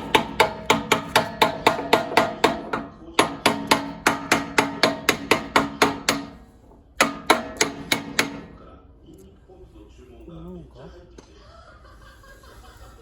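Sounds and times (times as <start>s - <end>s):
hammer tapping on metal: 0.0s - 8.6s.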